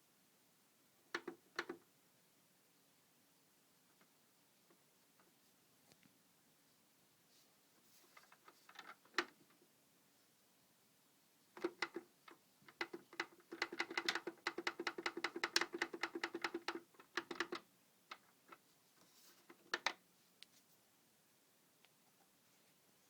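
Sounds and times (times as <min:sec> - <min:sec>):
humidifier clicking and popping: 0:11.6 - 0:18.6.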